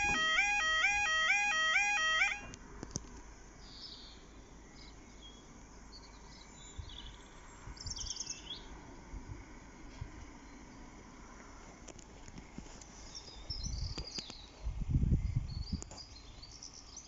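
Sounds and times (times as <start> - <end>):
small birds chirping: 3.6 - 8.8, 12.7 - 17.0.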